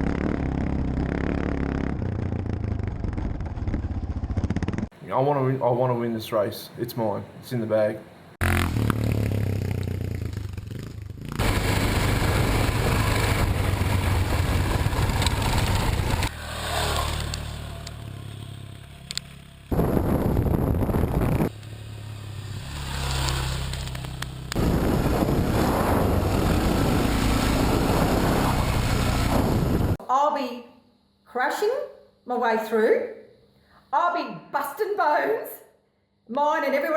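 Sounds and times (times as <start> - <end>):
motorcycle engines running: 0.0 - 5.0, 8.4 - 30.0
motorcycle passing by: 8.4 - 19.9, 21.0 - 30.0
wind and road noise: 8.4 - 30.0.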